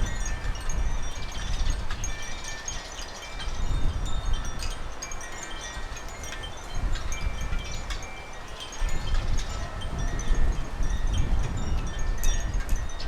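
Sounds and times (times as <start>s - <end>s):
wind rumble on microphone: 0.0s - 13.0s
small birds chirping: 0.1s - 6.2s.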